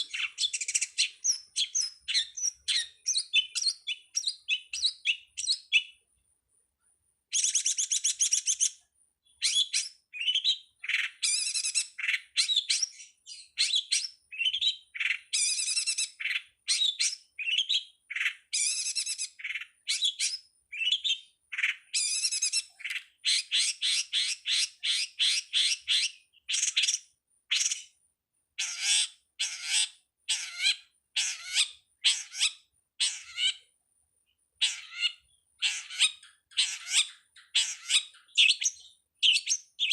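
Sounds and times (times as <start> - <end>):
shrike singing: 0.0 - 6.0.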